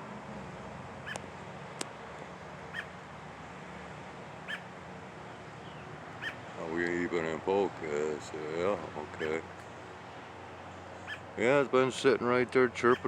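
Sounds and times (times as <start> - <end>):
bird chirping: 4.4 - 4.7, 5.3 - 6.4, 11.0 - 11.3.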